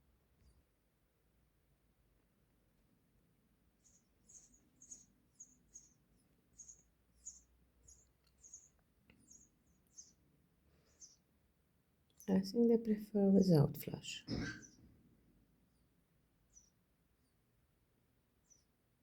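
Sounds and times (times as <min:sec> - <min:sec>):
sparrow nestlings cheeping: 0:03.8 - 0:10.2, 0:10.9 - 0:11.2.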